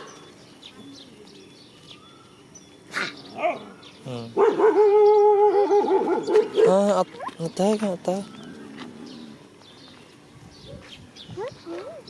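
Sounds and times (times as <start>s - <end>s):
dog barking: 3.4s - 3.7s, 4.4s - 7.0s.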